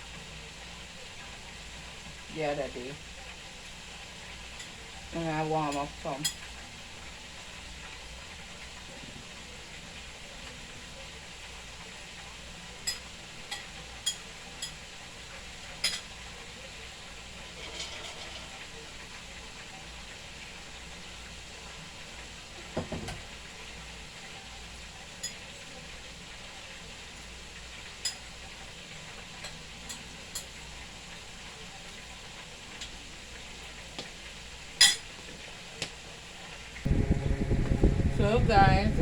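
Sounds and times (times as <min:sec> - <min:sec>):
chicken sizzling in hot oil: 0:00.0 - 0:39.0
utensils clinking on dishes: 0:12.8 - 0:14.8, 0:15.8 - 0:16.1, 0:17.4 - 0:18.7, 0:25.2 - 0:25.5, 0:34.8 - 0:35.1.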